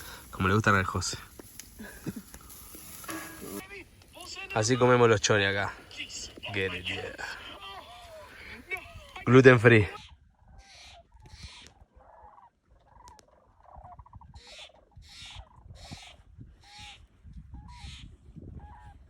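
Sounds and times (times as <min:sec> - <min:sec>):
soft bursts of hiss: 0:00.0 - 0:09.3
distant birds calling: 0:00.0 - 0:11.9.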